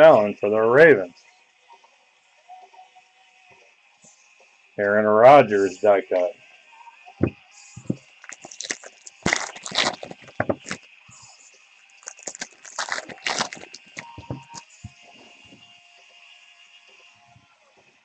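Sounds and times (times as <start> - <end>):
card wrappers crinkling and tearing: 7.8 - 10.9, 11.8 - 14.7.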